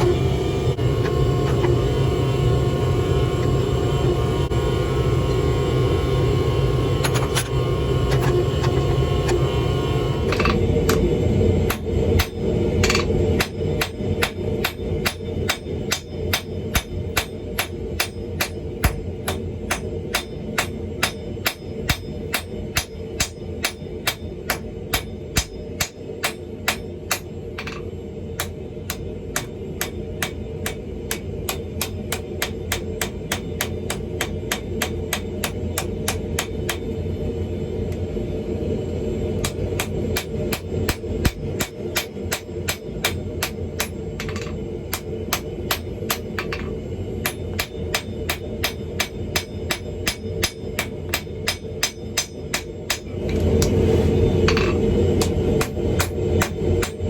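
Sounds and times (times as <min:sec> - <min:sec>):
hammer blows forging steel: 0:10.1 - 0:37.0, 0:39.3 - 0:53.8, 0:54.4 - 0:57.0.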